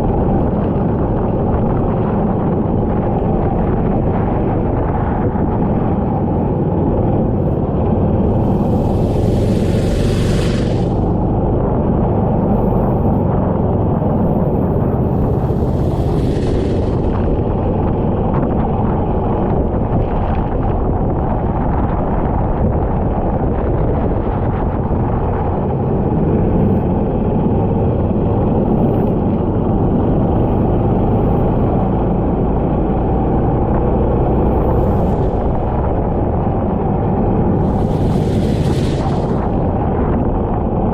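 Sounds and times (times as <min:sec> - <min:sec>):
go-kart engine running: 0:06.3 - 0:19.7
brief rush of hiss: 0:08.3 - 0:11.3, 0:15.1 - 0:17.5, 0:34.7 - 0:36.0, 0:37.6 - 0:39.8.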